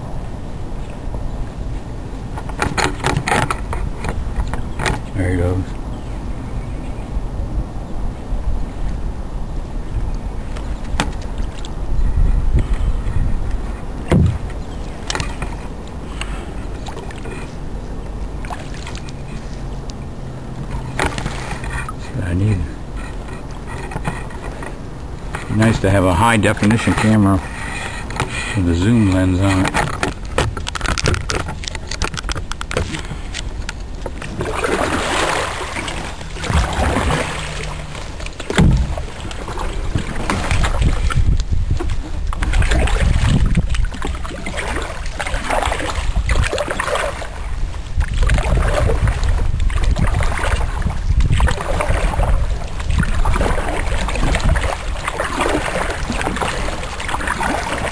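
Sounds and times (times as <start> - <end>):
paddle strokes through water: 8.7 - 57.9
sharp thump: 14.1 - 14.4, 38.5 - 39.0.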